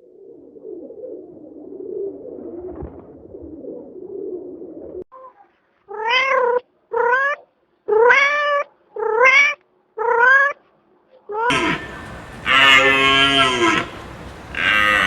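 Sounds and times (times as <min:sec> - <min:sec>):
low continuous sound: 0:11.5 - 0:15.0.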